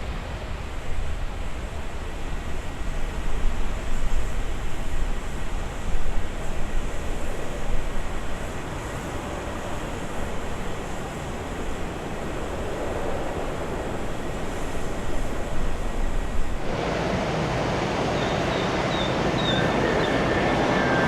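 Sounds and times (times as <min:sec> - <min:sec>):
jet engines roaring: 0:05.2 - 0:21.0
high whistling tones: 0:18.1 - 0:21.0.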